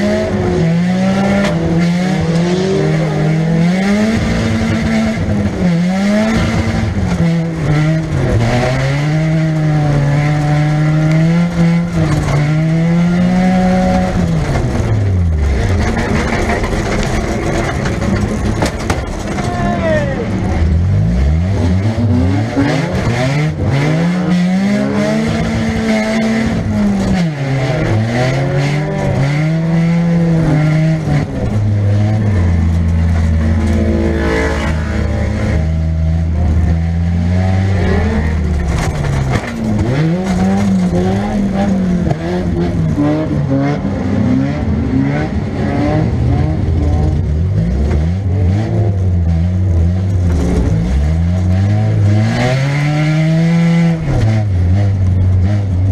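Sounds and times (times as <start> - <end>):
knocks and thumps: 14.3 - 19.5
car engine revving in bursts: 20.3 - 55.9.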